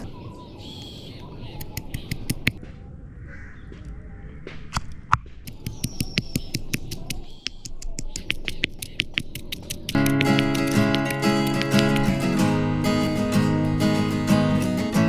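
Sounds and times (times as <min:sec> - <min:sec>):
cooking crackling pops: 0:01.6 - 0:02.6, 0:05.5 - 0:12.3.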